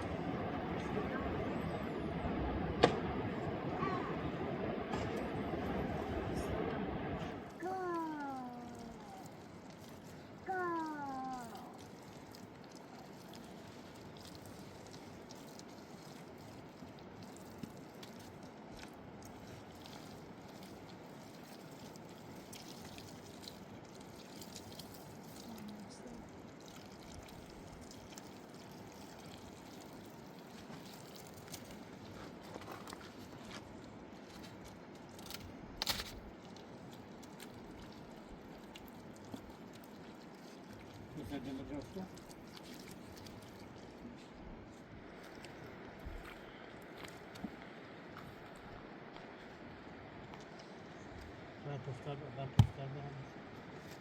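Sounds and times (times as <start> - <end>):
steady rushing background noise: 0.0 - 7.6
sharp knocks: 52.6 - 52.8.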